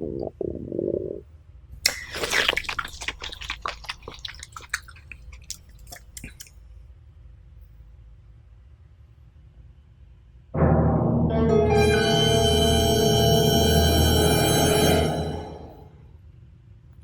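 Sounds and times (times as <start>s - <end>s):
squishy bite: 1.8s - 6.6s
wet chewing and crunching: 1.8s - 6.6s.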